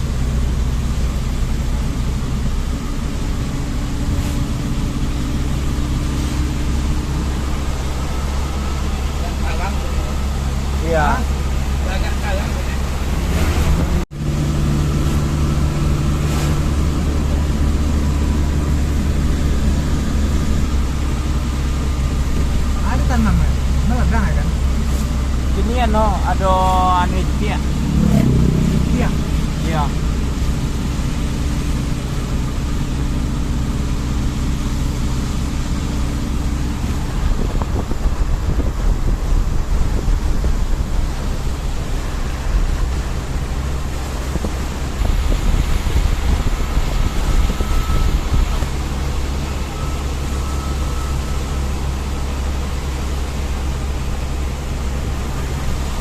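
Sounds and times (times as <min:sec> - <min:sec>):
constant hiss: 0:00.0 - 0:28.0
vehicle engine and road rumble: 0:00.0 - 0:56.0.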